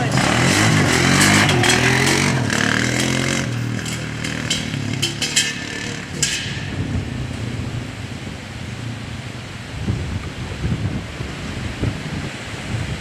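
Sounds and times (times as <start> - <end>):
atv engine revving: 0.0 - 7.1
rough rushing noise: 0.0 - 8.9.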